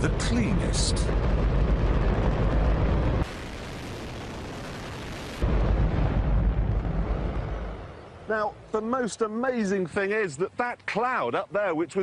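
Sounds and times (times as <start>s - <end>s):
rocket engine roaring: 0.0s - 8.1s.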